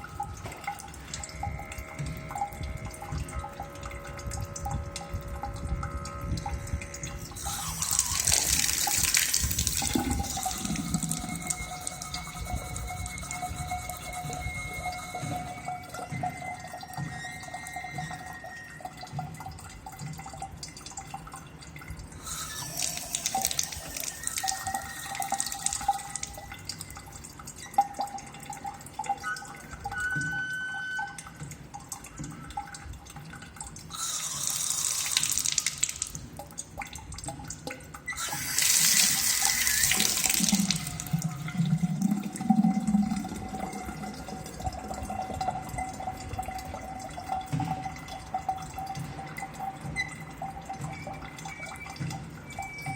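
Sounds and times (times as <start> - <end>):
faucet high-pitched whine: 0.0 - 52.9
water rushing from faucet: 0.0 - 52.9.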